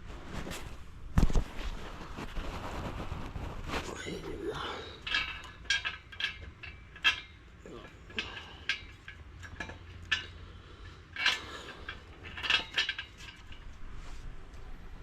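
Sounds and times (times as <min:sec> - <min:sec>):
tools clinking on metal exhaust: 0:04.0 - 0:13.8.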